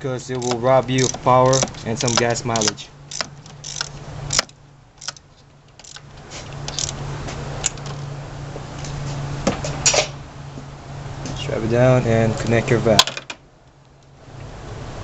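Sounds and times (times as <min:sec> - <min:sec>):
steady low hum: 0:00.0 - 0:15.0
metal parts clinking and rattling: 0:00.3 - 0:07.0.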